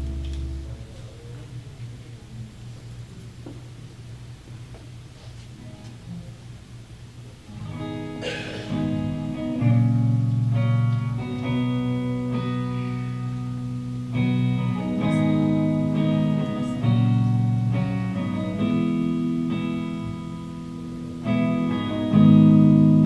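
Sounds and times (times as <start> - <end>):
guitar chords strummed and ringing: 0.0 - 0.8, 7.5 - 23.0
worship band playing: 0.0 - 1.3, 7.6 - 13.6, 14.2 - 23.0.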